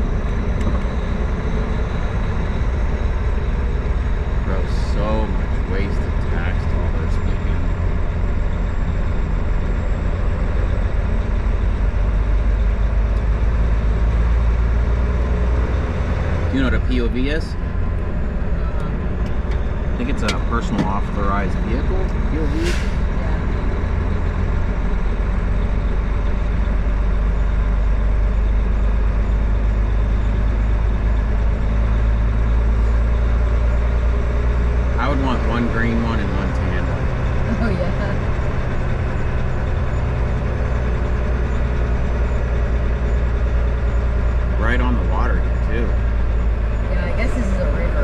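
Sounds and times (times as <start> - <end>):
diesel truck engine rumble: 0.0 - 48.0
road noise: 0.0 - 48.0.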